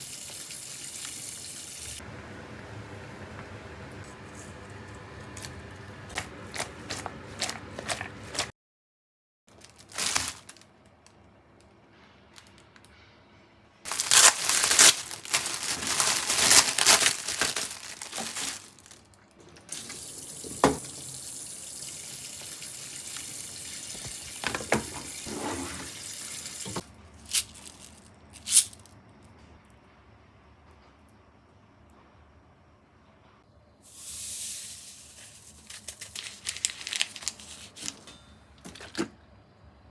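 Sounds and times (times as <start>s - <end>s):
tap water running into sink: 0.0s - 2.0s, 19.4s - 26.9s
handling clicks and rustles: 5.3s - 8.5s, 13.9s - 19.1s, 35.7s - 38.1s.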